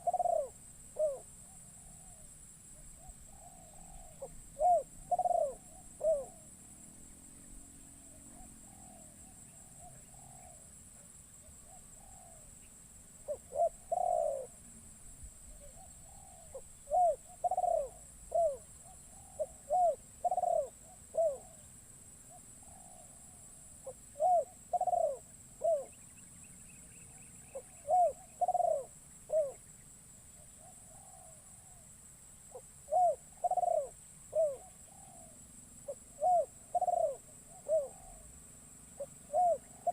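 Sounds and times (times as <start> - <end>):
dove cooing: 0.0 - 6.5, 8.3 - 10.7, 11.6 - 12.5, 13.2 - 14.6, 15.5 - 21.7, 22.3 - 26.0, 27.1 - 29.6, 30.6 - 31.8, 32.5 - 38.3, 39.0 - 39.9.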